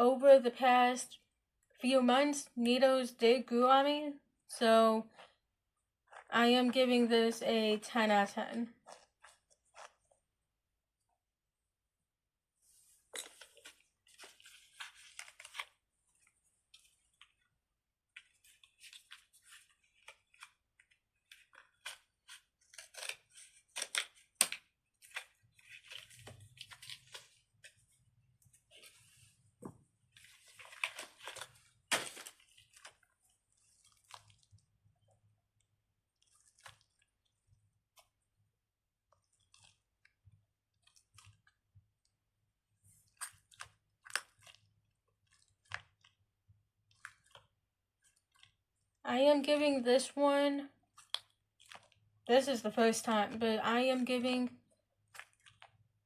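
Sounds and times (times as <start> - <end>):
stress ball crunching crackles: 18.1 - 35.1, 36.2 - 38.2, 43.0 - 46.2, 55.0 - 55.8.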